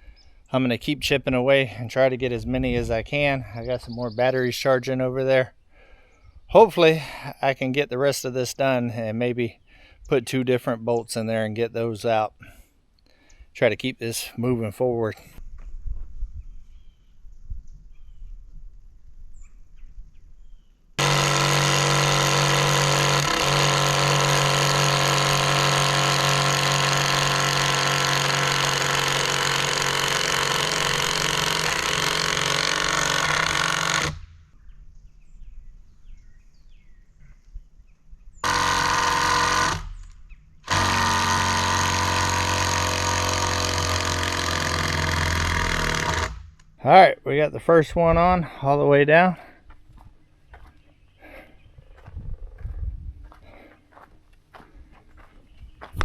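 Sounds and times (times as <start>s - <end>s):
impact driver driving screw into wood: 21.0s - 34.3s, 38.4s - 46.7s.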